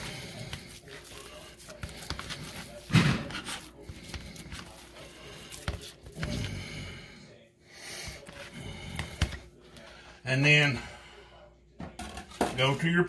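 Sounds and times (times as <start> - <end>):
hands squishing ground meat: 0.0 - 6.8.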